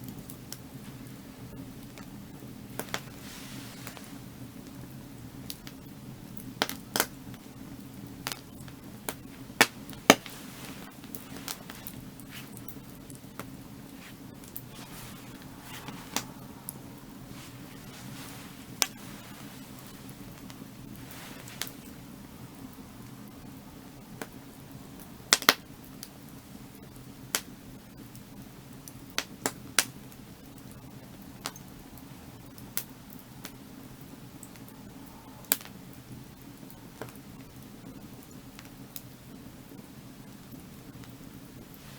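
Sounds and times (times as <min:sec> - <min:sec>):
low steady rush: 0:00.0 - 0:38.5
firewood crackling and popping: 0:00.0 - 0:41.9
low steady rumble: 0:00.1 - 0:28.8.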